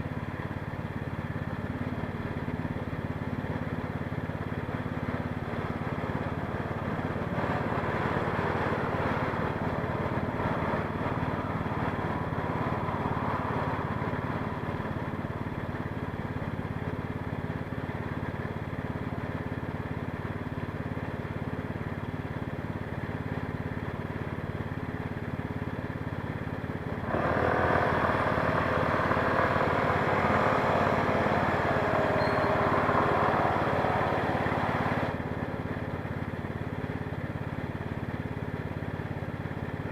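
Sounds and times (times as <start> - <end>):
street traffic hum: 0.0 - 39.9
wavering engine-like tone: 6.1 - 15.6, 27.1 - 35.7.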